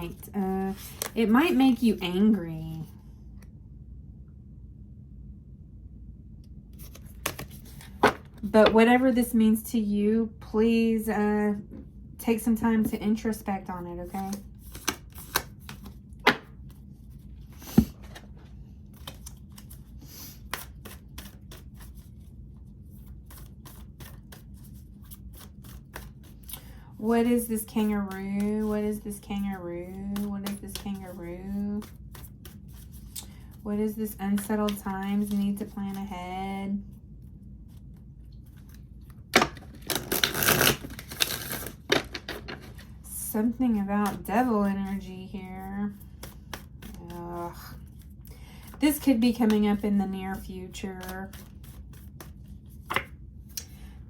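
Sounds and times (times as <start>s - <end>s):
faint low hum: 0.0s - 54.0s
cards being shuffled: 0.1s - 1.6s, 6.8s - 8.5s, 14.1s - 22.3s, 22.9s - 26.7s, 27.3s - 33.6s, 34.3s - 36.1s, 37.7s - 43.0s, 44.0s - 53.8s
cards snapping: 6.8s - 8.3s, 14.3s - 16.5s, 39.4s - 42.6s, 51.0s - 53.8s.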